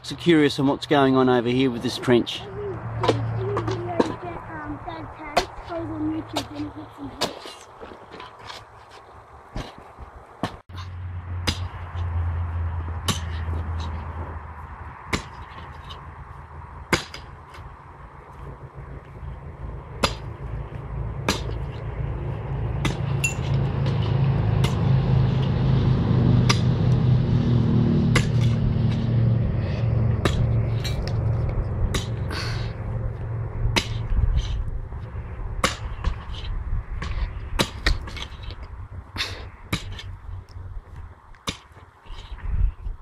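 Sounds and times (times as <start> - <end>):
low hum: 9.2 - 41.2
pick striking hard ground: 9.5 - 12.1, 12.9 - 14.1, 15.1 - 16.1, 16.8 - 17.7, 19.8 - 22.0, 22.6 - 25.4, 28.1 - 32.8, 33.7 - 34.7, 35.6 - 40.2, 40.9 - 42.4.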